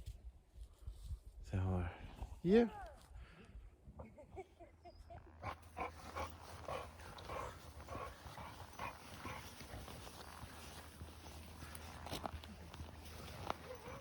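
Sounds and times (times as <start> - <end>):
footsteps crunching in snow: 5.6 - 14.0.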